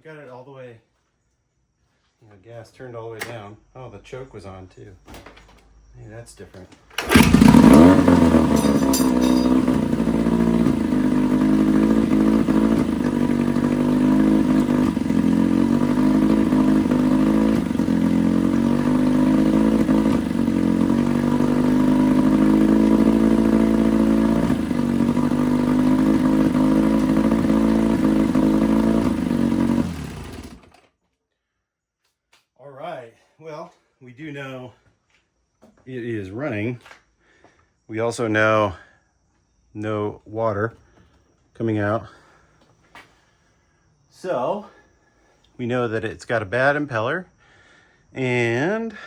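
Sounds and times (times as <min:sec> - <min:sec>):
outboard motor running high revs: 0:07.0 - 0:30.7.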